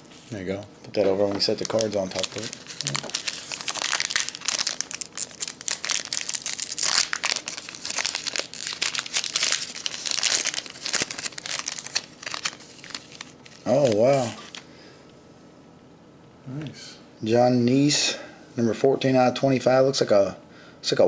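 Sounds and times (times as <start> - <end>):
packaging crinkling and tearing: 1.2 - 14.6.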